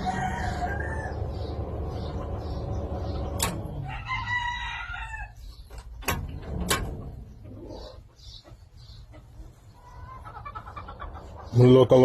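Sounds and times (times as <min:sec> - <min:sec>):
rooster crowing: 0:00.0 - 0:01.4, 0:03.8 - 0:05.4.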